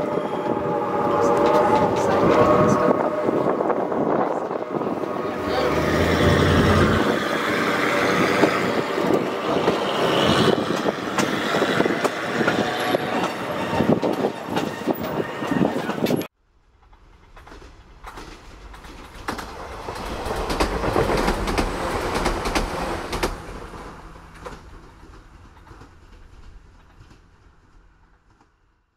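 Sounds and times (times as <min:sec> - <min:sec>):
train car rumble and clatter: 0:00.0 - 0:28.9.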